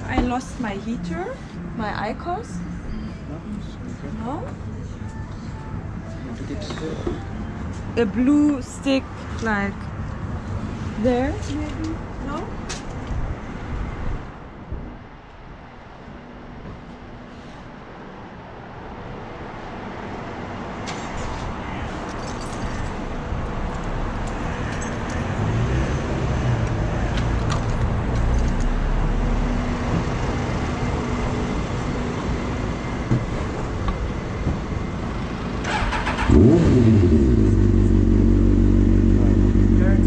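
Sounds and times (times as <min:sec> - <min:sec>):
passing traffic noise: 0:00.0 - 0:40.0
vehicle engine revving: 0:35.6 - 0:40.0.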